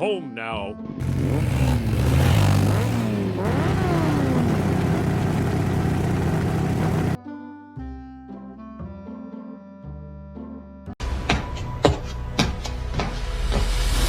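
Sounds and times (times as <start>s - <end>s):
vehicle engine revving: 1.0s - 7.2s.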